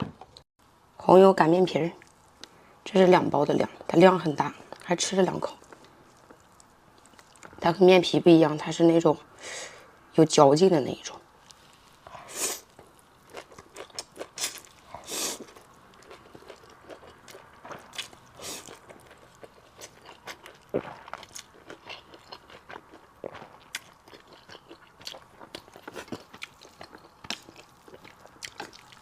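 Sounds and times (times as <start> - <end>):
close chewing of noodles: 4.6 - 7.6, 11.5 - 29.0.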